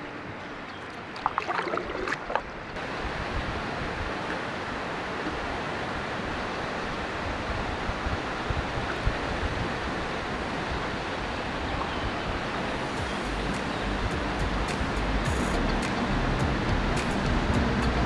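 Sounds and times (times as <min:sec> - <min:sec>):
river water rushing: 0:00.0 - 0:18.0
wind buffeting microphone: 0:00.0 - 0:18.0.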